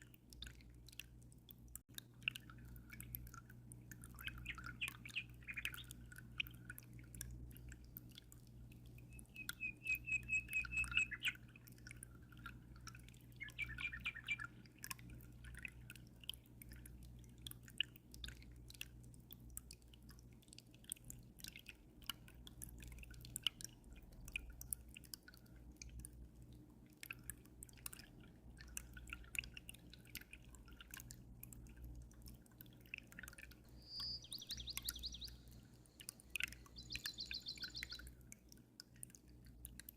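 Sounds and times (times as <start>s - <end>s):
low steady hum: 0.0s - 39.9s
water dripping: 0.0s - 39.9s
birds singing: 4.2s - 6.0s, 9.1s - 11.5s, 13.4s - 14.6s, 33.7s - 38.1s.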